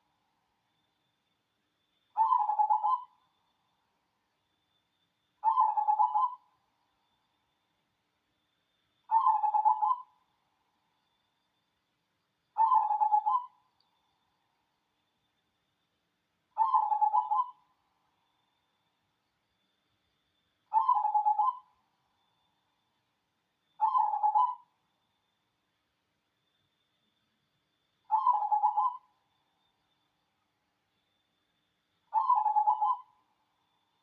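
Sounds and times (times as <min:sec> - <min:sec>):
dove cooing: 0:05.4 - 0:06.4, 0:09.1 - 0:10.1, 0:12.6 - 0:13.5, 0:16.6 - 0:17.6, 0:20.7 - 0:21.6, 0:28.1 - 0:29.0, 0:32.2 - 0:33.1.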